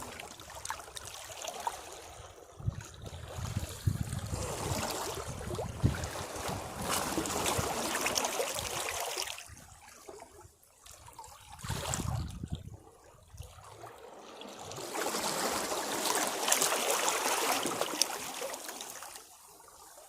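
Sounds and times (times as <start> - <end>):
waves breaking against rocks: 0.0 - 10.2, 13.7 - 19.3.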